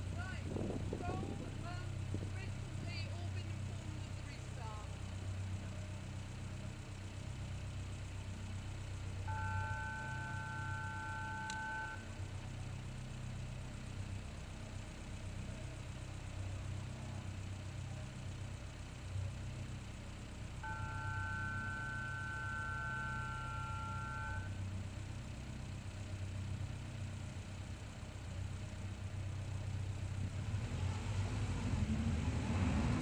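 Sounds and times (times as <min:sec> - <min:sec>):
race car engines idling: 0:00.0 - 0:32.3
two-note electronic beep: 0:09.3 - 0:12.1, 0:20.6 - 0:24.6.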